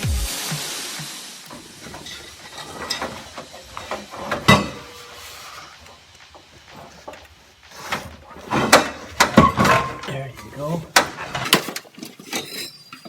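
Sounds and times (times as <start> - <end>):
metal knocks and clinks: 11.2 - 13.0.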